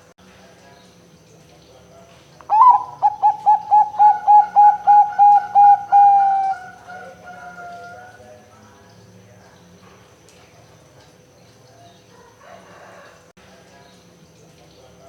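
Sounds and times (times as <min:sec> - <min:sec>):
dove cooing: 0:02.5 - 0:08.2.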